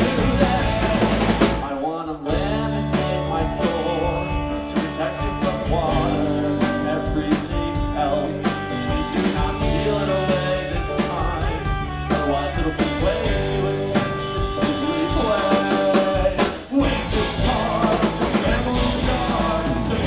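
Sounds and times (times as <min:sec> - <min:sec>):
rock band playing: 0:00.0 - 0:20.0.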